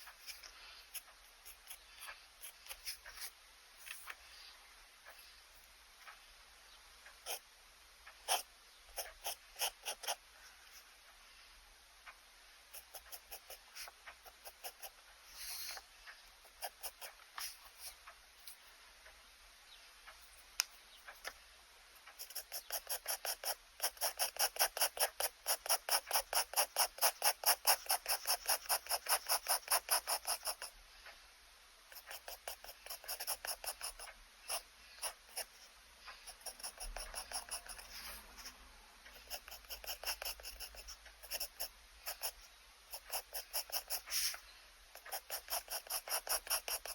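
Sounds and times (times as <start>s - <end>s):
pen nib scratching on paper: 0.0s - 4.3s, 7.2s - 7.4s, 8.2s - 10.9s, 12.7s - 15.8s, 16.4s - 18.6s, 22.1s - 30.7s, 31.9s - 46.9s.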